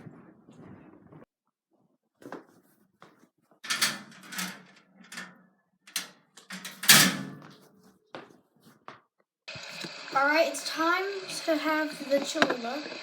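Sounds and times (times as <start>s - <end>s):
knocks and scuffs: 2.2s - 3.6s, 7.4s - 9.1s.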